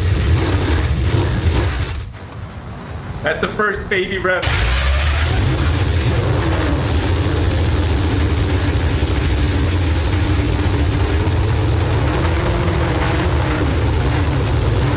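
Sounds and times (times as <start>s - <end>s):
racing engine idling: 4.4s - 14.9s.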